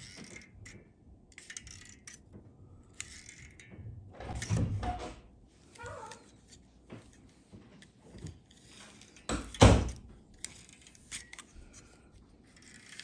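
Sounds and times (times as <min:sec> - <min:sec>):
plastic parts clicking and rattling: 0:00.0 - 0:13.0
plastic parts clattering: 0:07.3 - 0:13.0.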